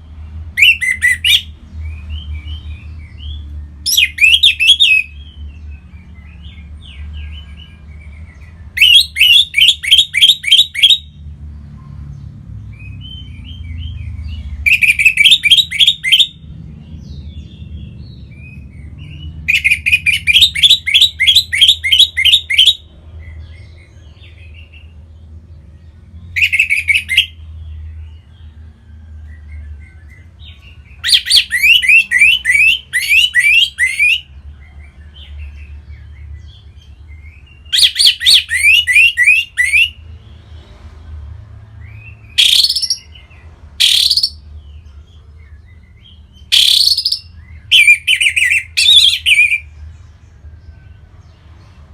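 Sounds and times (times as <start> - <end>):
thrush whistled song: 0.6 - 5.4, 7.4 - 11.2, 12.7 - 16.4, 18.3 - 22.8, 26.3 - 27.4, 30.9 - 34.3, 37.2 - 40.0, 41.8 - 43.2, 43.8 - 44.4, 45.8 - 49.7
bird twittering: 2.2 - 5.4, 6.5 - 11.2, 14.6 - 16.4, 17.1 - 22.9, 26.3 - 27.4, 30.1 - 34.3, 37.2 - 40.0, 42.3 - 43.2, 43.8 - 44.4, 45.9 - 49.7.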